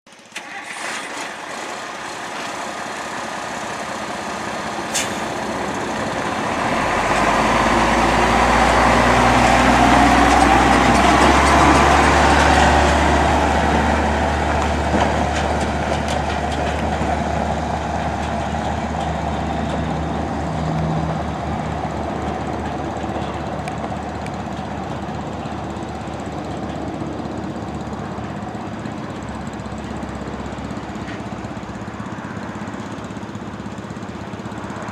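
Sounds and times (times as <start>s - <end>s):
truck engine running: 0.4s - 34.9s.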